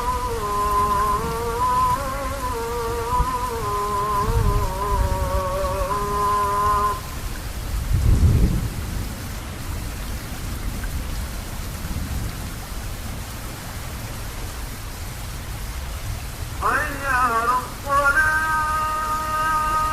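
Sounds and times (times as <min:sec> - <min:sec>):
man chanting call to prayer: 0:00.0 - 0:07.1, 0:16.6 - 0:19.9
steady rain falling: 0:00.0 - 0:19.9
low roll of thunder: 0:00.8 - 0:06.2, 0:07.7 - 0:13.2.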